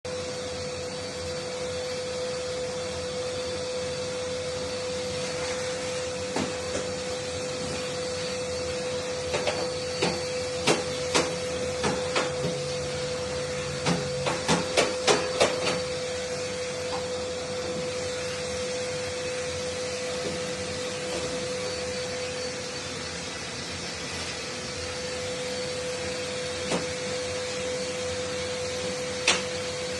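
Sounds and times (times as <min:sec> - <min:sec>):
vacuum cleaner running: 0:00.0 - 0:29.9.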